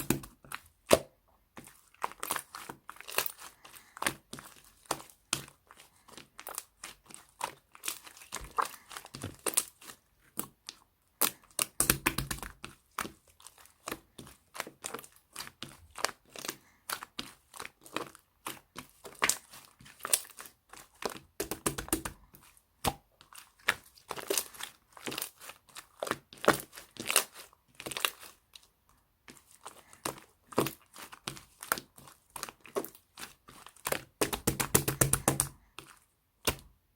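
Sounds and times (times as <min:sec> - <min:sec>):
slime crackling and popping: 0:02.0 - 0:20.5, 0:29.8 - 0:36.7.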